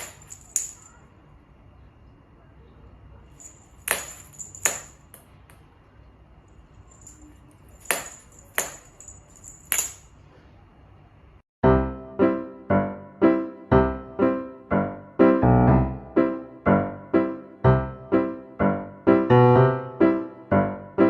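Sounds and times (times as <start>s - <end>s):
light ringing clinks: 0.0s - 1.0s, 3.4s - 5.6s, 6.6s - 10.2s
faint steady background noise: 0.0s - 11.4s
piano tune: 11.6s - 21.0s.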